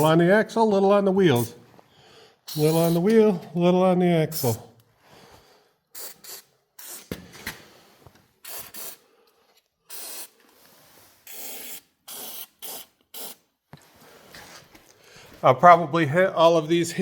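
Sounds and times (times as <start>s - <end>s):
aerosol spray hissing bursts: 2.5s - 3.0s, 4.3s - 4.6s, 6.0s - 7.1s, 8.4s - 9.0s, 9.9s - 10.4s, 11.2s - 13.4s.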